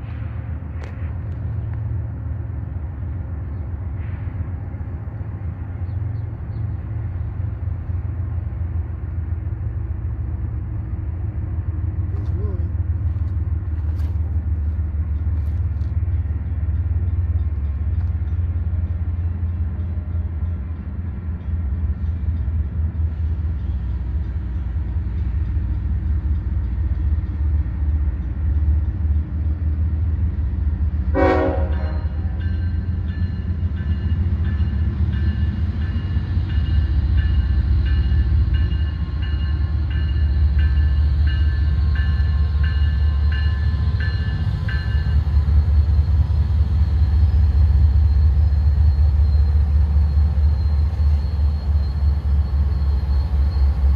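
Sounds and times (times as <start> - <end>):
freight train rumbling: 0.0 - 53.9
train horn blast: 31.1 - 32.4.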